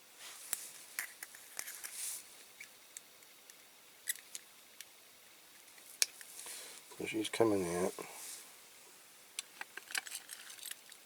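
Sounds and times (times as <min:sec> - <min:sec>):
soft rustle: 0:00.2 - 0:02.6, 0:06.2 - 0:07.0, 0:07.8 - 0:09.0.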